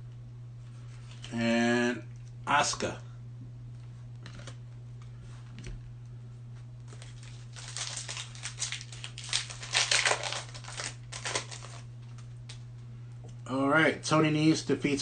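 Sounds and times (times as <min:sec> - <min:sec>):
low electrical hum: 0:00.0 - 0:15.0
card pack wrapper crinkling and tearing: 0:06.9 - 0:12.6.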